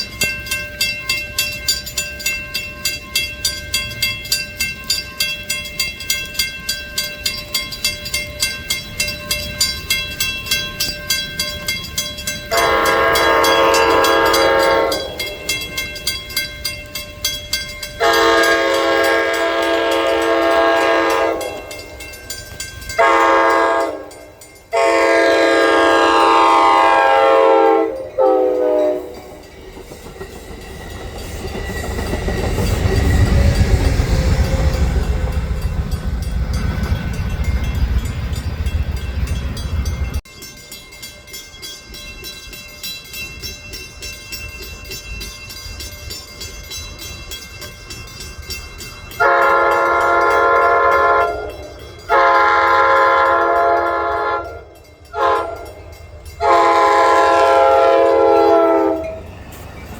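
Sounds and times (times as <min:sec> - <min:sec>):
passing train rumbling: 0:00.0 - 0:59.9
train horn blasts: 0:12.5 - 0:15.3, 0:18.0 - 0:21.8, 0:23.0 - 0:29.4, 0:49.2 - 0:55.8, 0:56.4 - 0:59.2.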